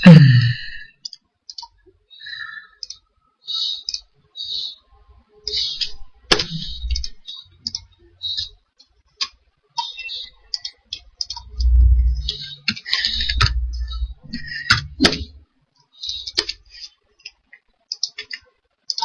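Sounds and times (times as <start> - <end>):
mouse and keyboard clicking: 2.8 - 3.0, 3.8 - 4.1, 5.4 - 8.5, 9.2 - 15.3, 17.2 - 19.0
dull low thumps: 11.4 - 12.5, 13.1 - 15.4.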